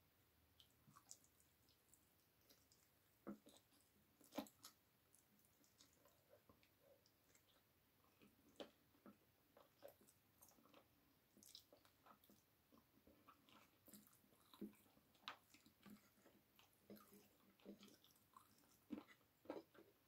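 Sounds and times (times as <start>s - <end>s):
chewing with mouth clicks: 0.6s - 20.0s.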